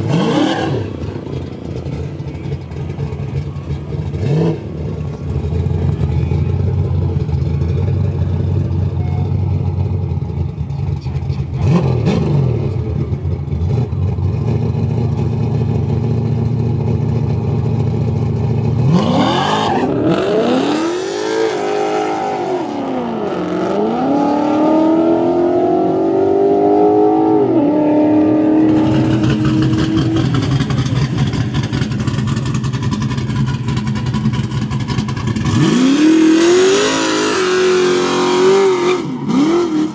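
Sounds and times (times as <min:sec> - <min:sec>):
car accelerating hard: 0:00.0 - 0:06.6, 0:18.6 - 0:39.9
drag race car engines running: 0:00.0 - 0:39.9.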